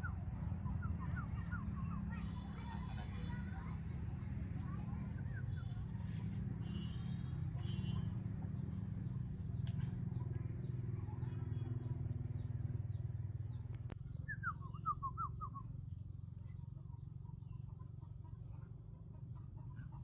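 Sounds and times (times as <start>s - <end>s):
low motor rumble: 0.0s - 20.0s
faint bird chirps: 4.7s - 20.0s.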